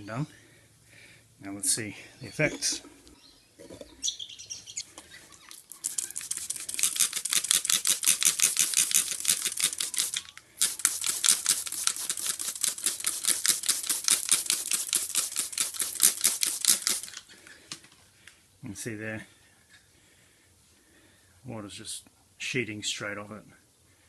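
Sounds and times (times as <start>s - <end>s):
spray bottle squirting: 5.6s - 17.2s.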